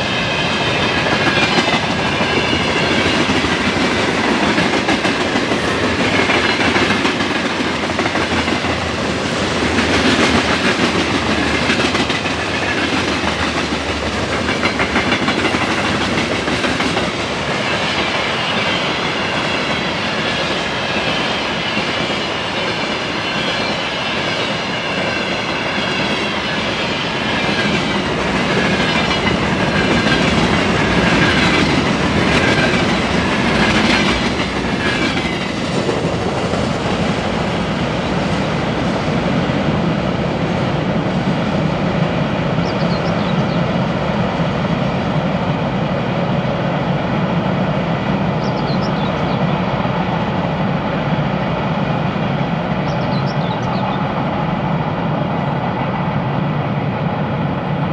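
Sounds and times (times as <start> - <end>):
high wheel squeal: 17.1 - 27.4.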